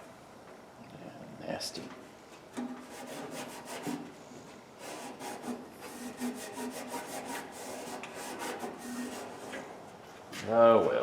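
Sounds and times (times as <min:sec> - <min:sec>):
hand scrubbing metal: 0:02.8 - 0:04.0, 0:04.8 - 0:09.7.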